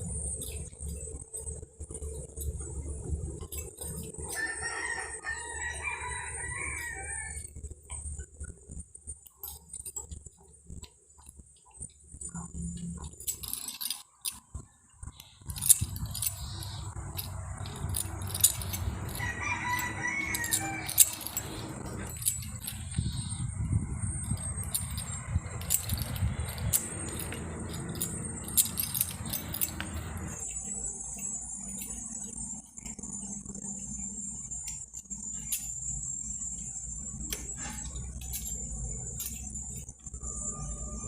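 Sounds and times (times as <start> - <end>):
insects shrilling: 0.0 - 41.0
rooster crowing: 4.3 - 7.6, 19.0 - 22.8
scattered clicks: 6.8 - 33.2
low rumbling noise: 15.0 - 30.4.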